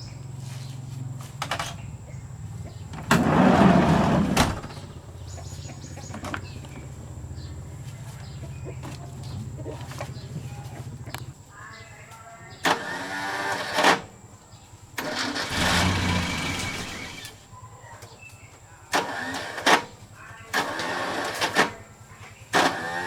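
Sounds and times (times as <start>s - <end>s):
diesel engine running: 0.0s - 11.4s, 14.7s - 17.4s
abrupt loud bursts of noise: 15.0s - 17.4s.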